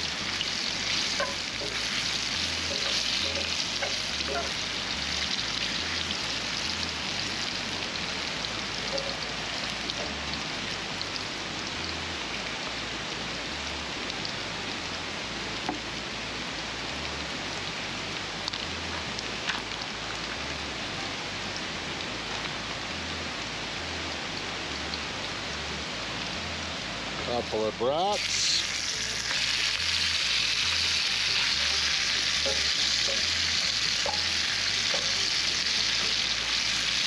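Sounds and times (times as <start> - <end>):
onions sizzling in a pan: 0.0 - 14.8, 28.0 - 37.0.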